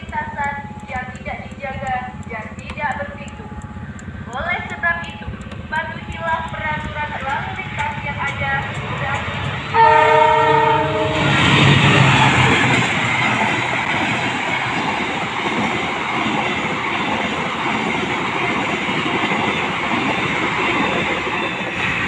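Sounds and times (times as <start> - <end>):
train wheels rumbling on rails: 0.0 - 22.0
locomotive horn blast: 9.7 - 11.5.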